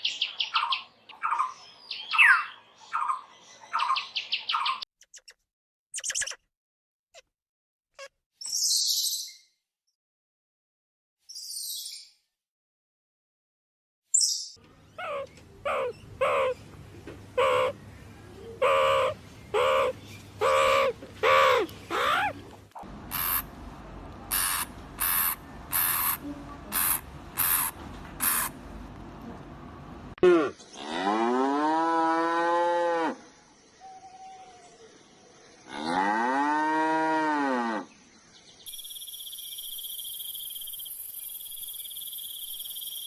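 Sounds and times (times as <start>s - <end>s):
animal calls: 14.9s - 16.6s, 17.4s - 17.8s, 18.5s - 23.4s, 24.3s - 28.5s
shrill high-pitched animal calls: 15.0s - 16.6s, 18.6s - 22.4s, 23.1s - 23.5s, 24.3s - 28.5s
long drawn-out animal call: 17.4s - 17.8s, 18.6s - 22.4s, 24.3s - 28.5s, 35.6s - 37.9s.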